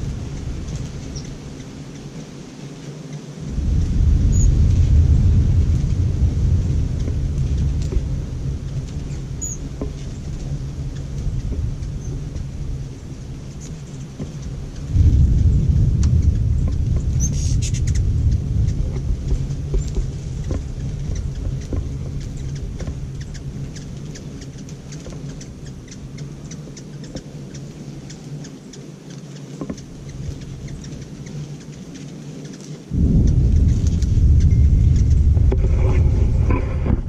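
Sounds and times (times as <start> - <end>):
thunder rumbling: 0.0 - 1.9, 3.4 - 27.0, 32.9 - 37.0
faint high ticks: 6.9 - 12.5.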